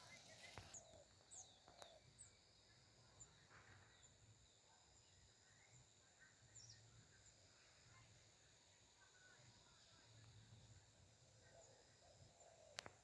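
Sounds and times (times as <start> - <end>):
faint bird chirps: 0.0 - 8.2.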